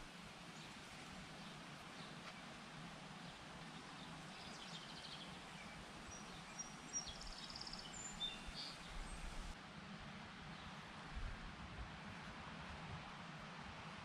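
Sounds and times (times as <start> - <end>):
faint birdsong: 0.0 - 9.6
low background hiss: 0.0 - 14.0.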